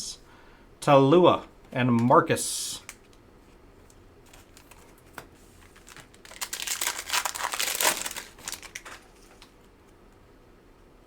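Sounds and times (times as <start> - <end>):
plastic wrapper crinkling: 3.9 - 9.6.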